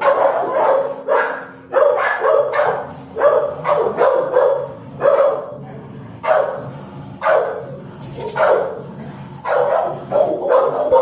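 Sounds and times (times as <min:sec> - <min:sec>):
dog barking: 0:00.0 - 0:05.6, 0:06.2 - 0:11.0.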